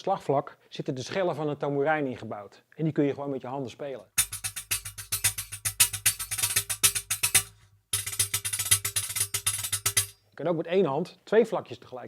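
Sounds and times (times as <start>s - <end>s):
tambourine jingles struck by hand: 4.2s - 10.2s.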